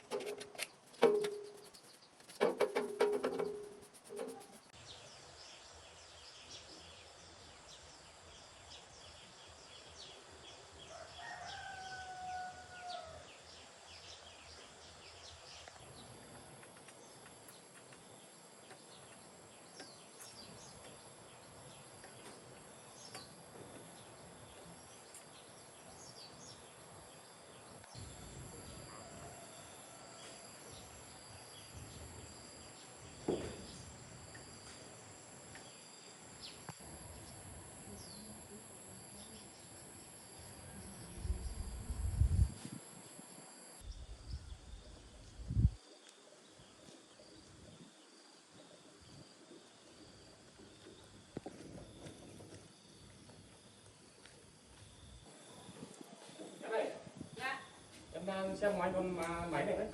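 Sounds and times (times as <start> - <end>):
insects droning: 0.0 - 59.9
rooster crowing: 10.9 - 13.3, 28.6 - 30.8.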